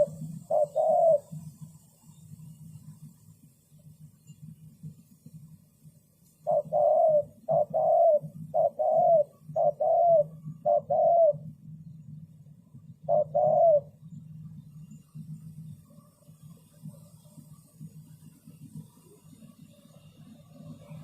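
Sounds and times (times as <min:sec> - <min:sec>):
dove cooing: 0:00.0 - 0:01.7, 0:06.4 - 0:11.6, 0:12.9 - 0:14.1.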